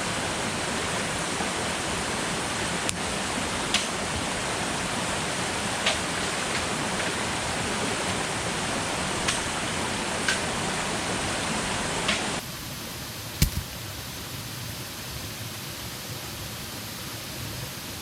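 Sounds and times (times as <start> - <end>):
rushing water: 0.0 - 18.0
short sharp taps: 13.4 - 13.7.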